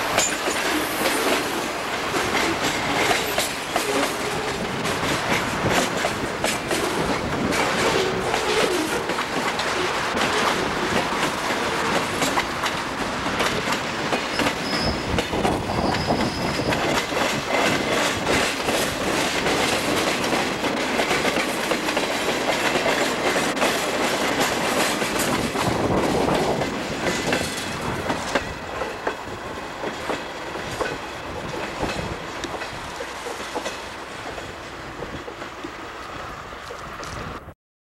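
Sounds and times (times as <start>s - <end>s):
wheels squealing on rail: 0.0s - 10.7s, 13.5s - 19.0s
train wheels clicking over rail joints: 0.0s - 37.4s.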